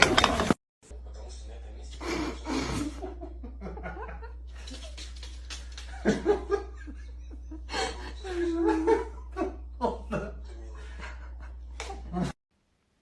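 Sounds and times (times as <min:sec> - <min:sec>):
steady low hum: 0:00.8 - 0:12.3
people laughing: 0:02.0 - 0:12.4.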